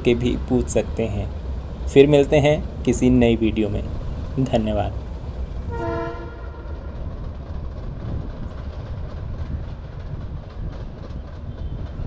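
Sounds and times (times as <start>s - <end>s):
train rumbling: 0.0s - 12.0s
wheels clickety-clack: 6.7s - 12.0s.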